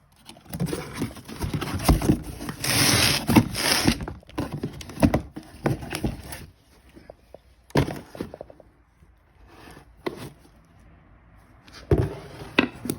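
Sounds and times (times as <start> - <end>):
packing material rustling: 0.4 - 6.6
cardboard box knocks and thumps: 0.4 - 7.1, 7.7 - 8.7, 11.8 - 12.9.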